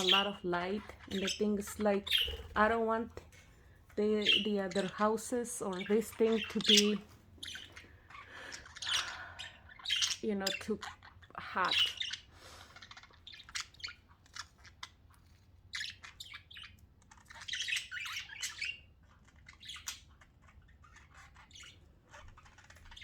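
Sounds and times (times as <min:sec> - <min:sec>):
budgerigars chirping: 0:00.0 - 0:23.0.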